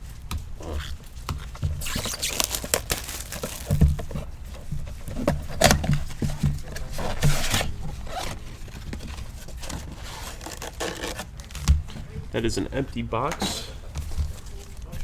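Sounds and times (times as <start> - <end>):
cardboard rustling and scraping: 0.6 - 12.7, 13.9 - 15.0
plastic wrap crinkling and tearing: 1.6 - 4.4, 9.2 - 11.7.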